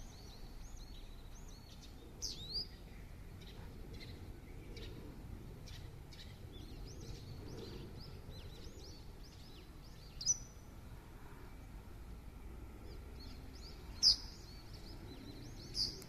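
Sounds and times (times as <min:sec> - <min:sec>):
small birds chirping and whistling: 0:00.0 - 0:05.0, 0:05.7 - 0:10.6, 0:13.2 - 0:16.0
low outdoor rumble: 0:00.0 - 0:16.0.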